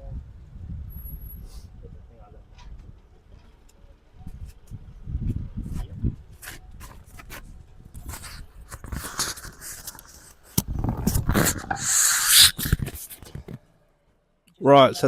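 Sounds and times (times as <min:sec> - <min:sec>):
tool scraping metal: 0:11.0 - 0:13.2.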